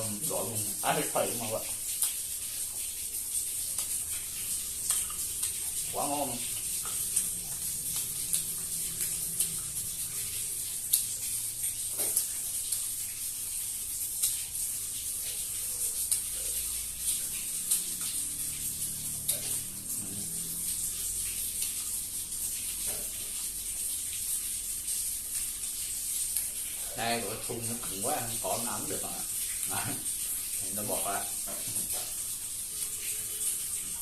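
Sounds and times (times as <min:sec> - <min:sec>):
steady high hiss: 0:00.0 - 0:34.0
person eating crunchy food: 0:17.0 - 0:20.6.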